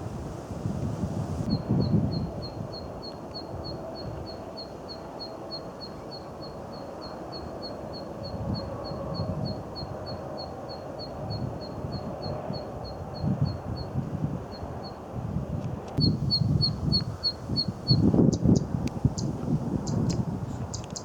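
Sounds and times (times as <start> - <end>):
bird sharp zit calls: 16.0 - 21.0.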